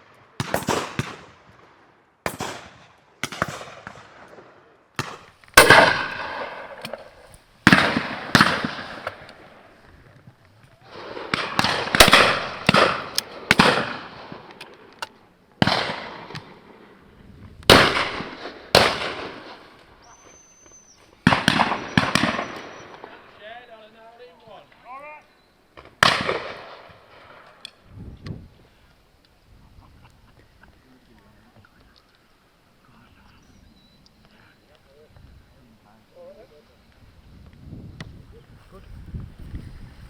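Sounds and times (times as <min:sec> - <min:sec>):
shotguns firing with echo: 0:00.0 - 0:09.8, 0:10.9 - 0:17.0, 0:17.7 - 0:20.2, 0:21.2 - 0:23.6, 0:25.8 - 0:27.7.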